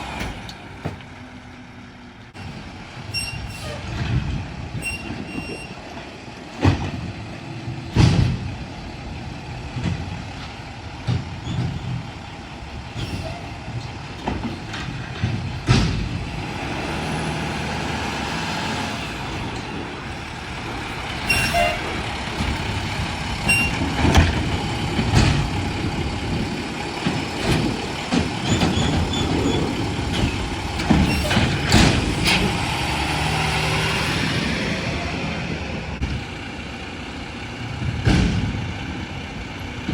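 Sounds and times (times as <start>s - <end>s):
garbage truck engine running: 0.0s - 39.9s
sharp bangs and knocks: 6.5s - 8.7s, 13.1s - 18.2s, 18.8s - 33.3s, 37.8s - 39.1s
air brakes hissing: 21.2s - 22.0s.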